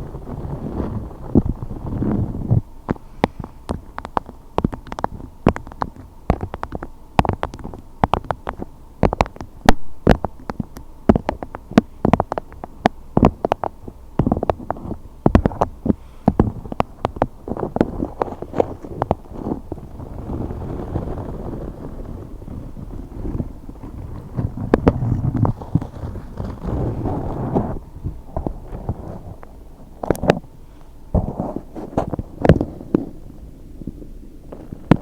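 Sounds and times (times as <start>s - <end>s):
low muffled rumble: 0.0s - 35.0s
sharp clicking and tapping: 2.4s - 21.4s.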